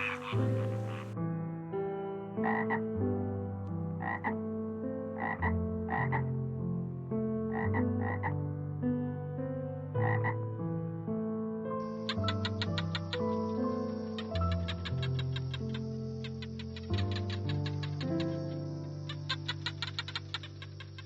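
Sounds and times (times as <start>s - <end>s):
background music of held notes: 0.0s - 1.2s
frog croaking: 0.0s - 1.2s, 2.4s - 2.8s, 4.0s - 4.4s, 5.2s - 6.3s, 7.5s - 8.4s, 10.0s - 10.4s, 11.8s - 21.0s.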